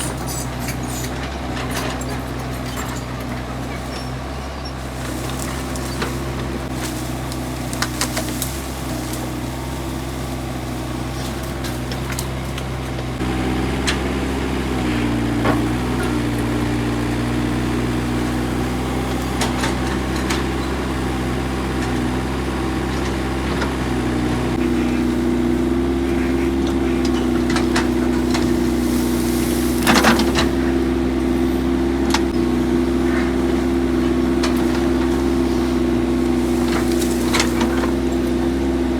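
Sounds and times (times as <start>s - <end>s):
excavator diesel engine running: 0.0s - 38.9s
knocks and clunks: 11.1s - 17.5s, 21.5s - 31.2s.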